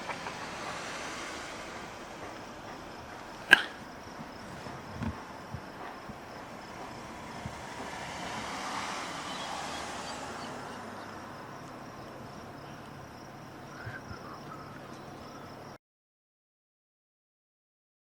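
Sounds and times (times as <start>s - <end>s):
steady rushing noise: 0.0s - 12.5s.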